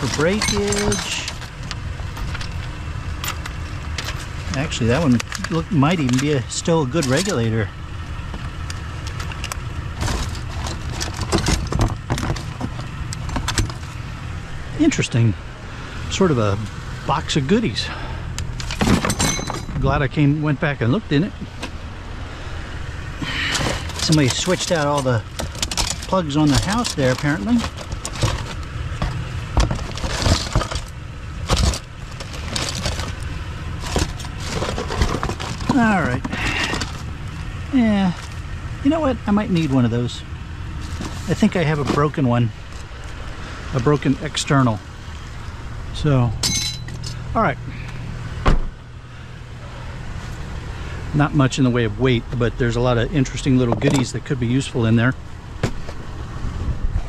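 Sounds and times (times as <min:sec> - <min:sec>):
scrap items clattering in a box: 0:00.0 - 0:02.6, 0:10.0 - 0:14.0, 0:23.2 - 0:37.1, 0:40.8 - 0:42.2
vehicle engine idling: 0:00.0 - 0:57.0.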